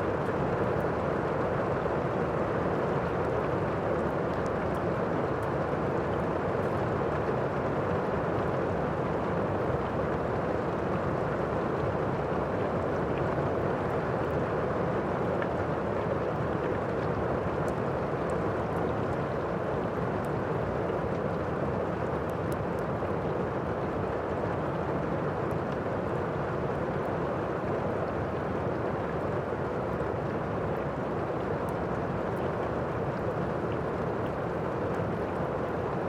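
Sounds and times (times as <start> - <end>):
steady rain: 0.0 - 36.0.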